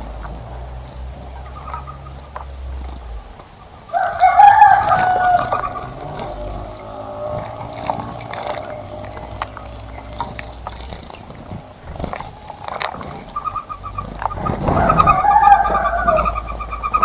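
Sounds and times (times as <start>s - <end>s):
bird chirps: 0.0s - 17.0s
low rumble: 0.0s - 17.0s
rooster crowing: 3.8s - 10.7s, 13.4s - 17.0s.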